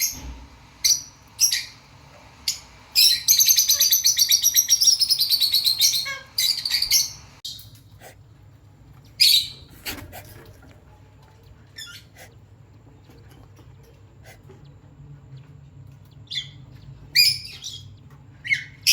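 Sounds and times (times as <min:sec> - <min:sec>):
cockatiel chirping: 0:02.5 - 0:08.2.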